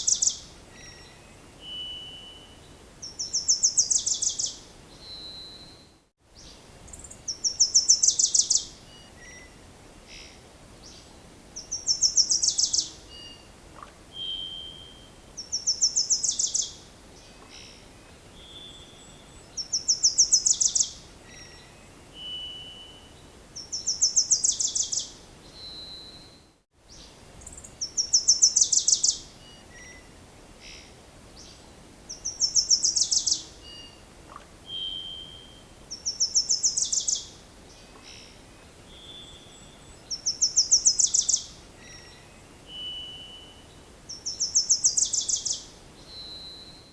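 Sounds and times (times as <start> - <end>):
songbird trilling: 0.0 - 1.0, 19.6 - 21.0, 23.6 - 25.1, 27.0 - 30.1, 32.1 - 37.3, 39.0 - 42.2, 44.1 - 46.6.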